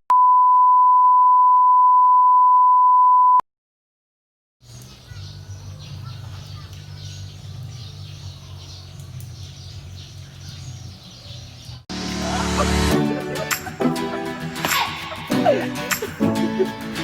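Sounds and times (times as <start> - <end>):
birds chirping: 4.6 - 17.0
music: 11.9 - 17.0.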